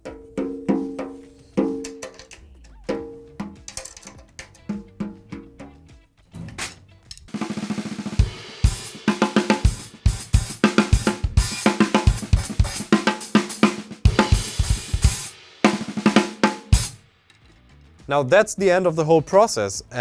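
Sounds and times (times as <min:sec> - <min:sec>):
drum kit beat: 0:00.0 - 0:06.1, 0:07.3 - 0:17.1.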